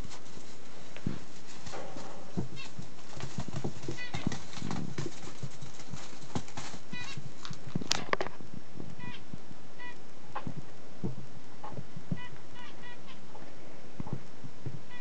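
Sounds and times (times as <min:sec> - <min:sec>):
puppy paws clicking and pattering: 0:00.0 - 0:08.3.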